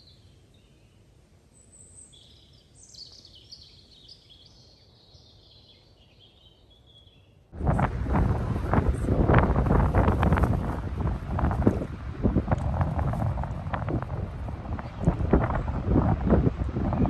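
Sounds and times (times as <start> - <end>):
small birds chirping: 0.0 - 7.5, 12.2 - 17.0
wind buffeting microphone: 7.6 - 17.0.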